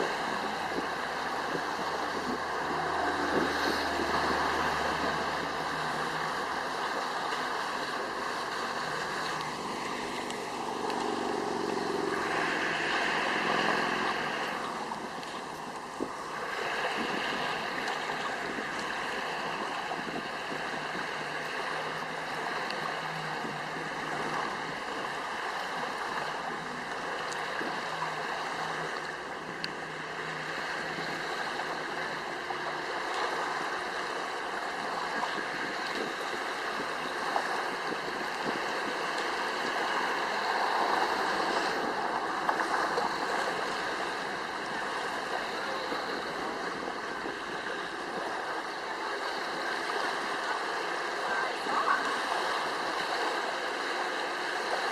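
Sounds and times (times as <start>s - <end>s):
faint steady tones: 0.0s - 54.9s
rushing water: 0.0s - 54.9s
wind: 0.0s - 54.9s.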